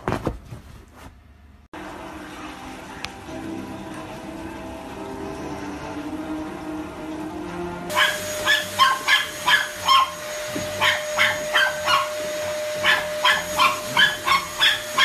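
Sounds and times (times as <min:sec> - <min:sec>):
vacuum cleaner motor whine: 0:01.8 - 0:15.0
puppy yapping: 0:07.9 - 0:12.2, 0:12.8 - 0:15.0.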